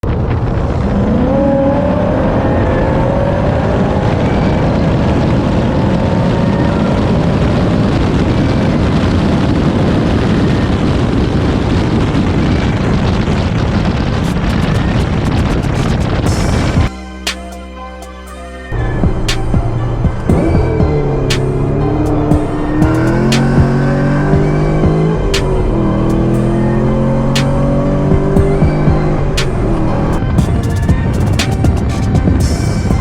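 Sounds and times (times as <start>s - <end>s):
wind noise: 0.0s - 17.5s, 18.7s - 33.0s
car engine revving: 0.6s - 4.5s, 18.2s - 33.0s.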